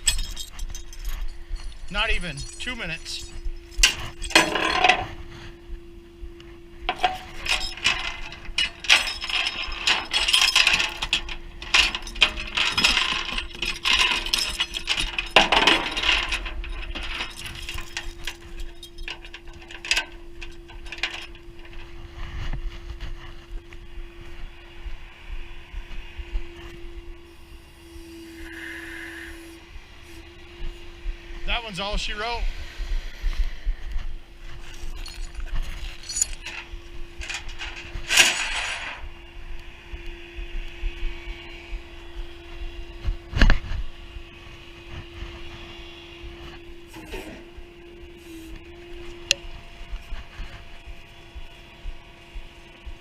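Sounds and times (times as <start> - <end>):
metal chains clanking and rattling: 0.0 - 5.2, 6.9 - 22.1, 34.5 - 39.1, 46.9 - 47.6
steady hum: 0.0 - 53.0.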